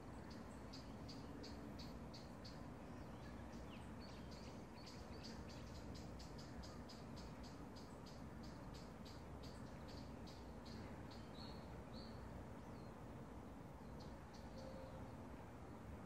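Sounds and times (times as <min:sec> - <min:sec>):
low steady hum: 0:00.0 - 0:16.0
small bird chirping: 0:00.2 - 0:12.9.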